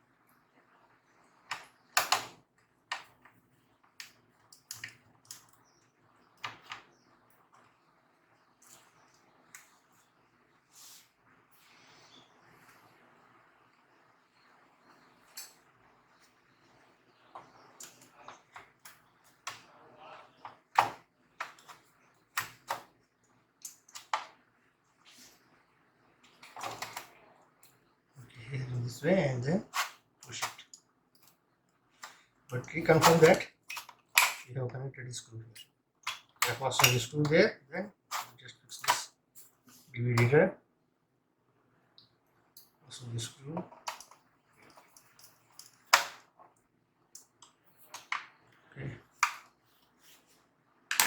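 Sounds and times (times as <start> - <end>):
clicks and taps of laptop parts: 1.5 - 5.6
laptop parts clicking and tapping: 1.5 - 5.8, 20.4 - 23.0, 43.6 - 46.3.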